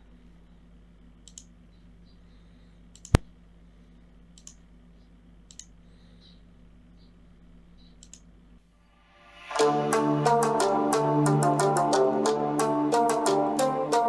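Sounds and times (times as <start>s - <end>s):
low electrical hum: 0.0s - 9.2s
computer mouse clicking: 1.2s - 1.5s, 2.9s - 3.3s, 4.3s - 4.6s, 5.5s - 5.8s, 7.8s - 8.3s.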